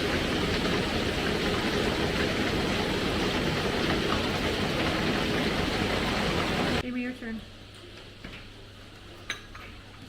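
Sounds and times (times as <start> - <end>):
heavy rain rushing: 0.0 - 6.8.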